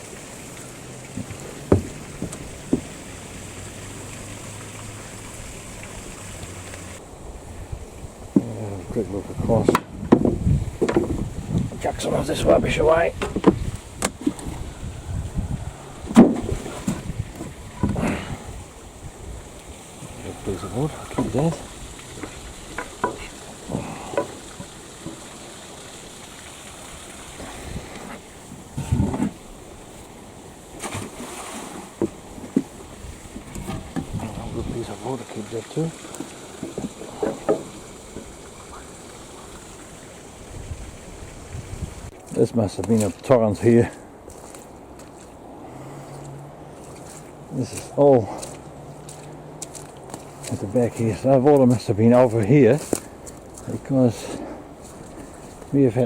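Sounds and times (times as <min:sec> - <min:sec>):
background hiss: 0:00.0 - 0:56.0
stream rushing: 0:00.0 - 0:56.0
wood knocking and clattering: 0:01.0 - 0:03.2, 0:09.6 - 0:11.8, 0:13.2 - 0:14.6, 0:16.1 - 0:18.3, 0:22.2 - 0:25.3, 0:36.1 - 0:38.3
wind on microphone: 0:01.0 - 0:25.2, 0:25.8 - 0:35.1, 0:36.8 - 0:42.2
short knocks or thuds: 0:01.2 - 0:03.0.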